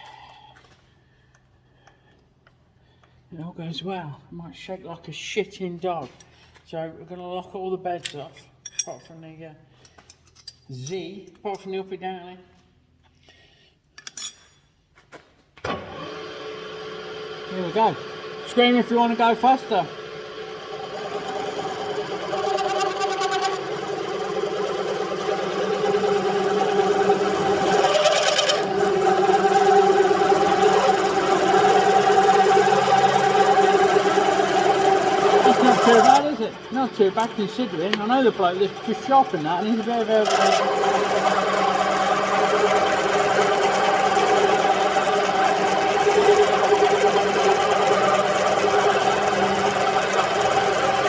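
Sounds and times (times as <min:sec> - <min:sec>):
milling machine hum: 0:15.7 - 0:51.0
drill bit cutting metal: 0:17.1 - 0:51.0.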